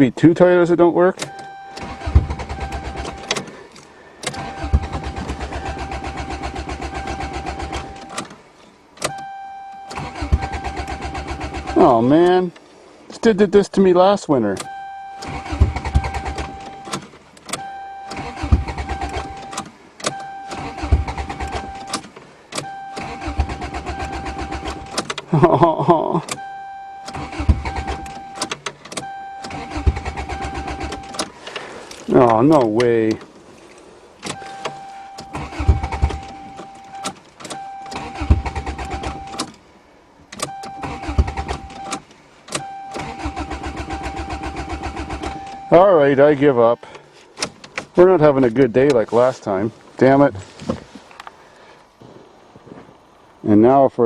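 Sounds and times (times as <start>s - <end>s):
car engine cranking: 0.0s - 13.4s, 14.3s - 52.0s
starter click: 1.2s - 8.4s, 14.5s - 25.3s, 26.2s - 33.3s, 34.2s - 39.6s, 40.3s - 45.8s.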